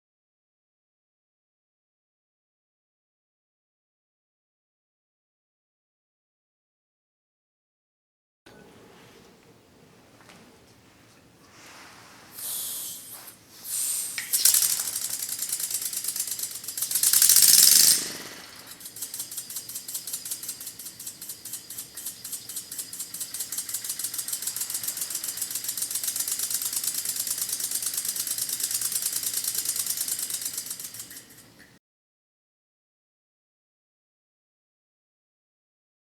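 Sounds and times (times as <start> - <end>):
hissing air bursts: 11.5 - 30.9
steam engine exhaust puffing: 11.5 - 31.7.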